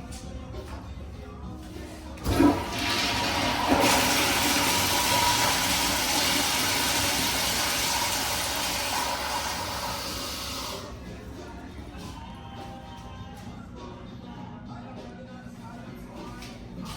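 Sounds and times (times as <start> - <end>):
toilet flushing: 2.2 - 11.0.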